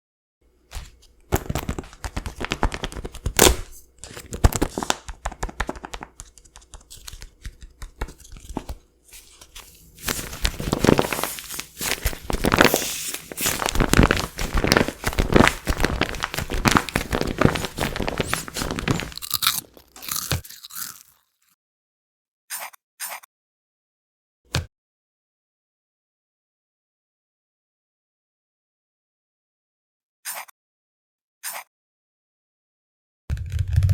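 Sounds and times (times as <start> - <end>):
potato chips crunching: 9.2 - 21.3.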